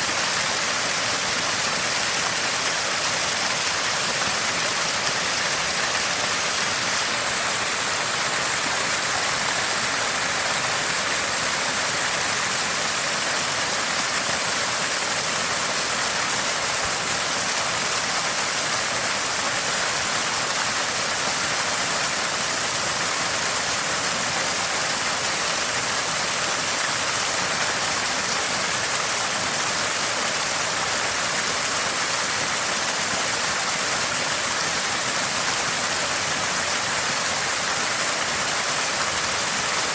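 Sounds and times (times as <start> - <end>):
spring water gushing and gurgling: 0.0 - 39.9.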